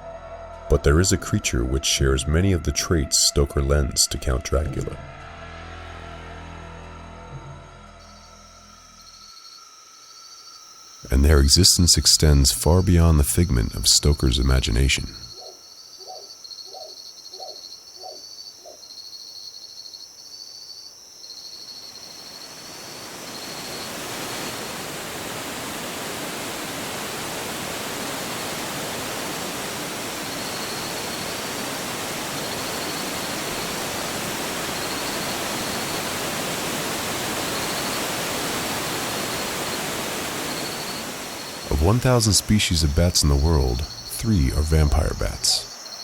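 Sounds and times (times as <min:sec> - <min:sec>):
insects chirping in trills: 0:08.0 - 0:46.0
steady rushing noise: 0:23.0 - 0:44.0.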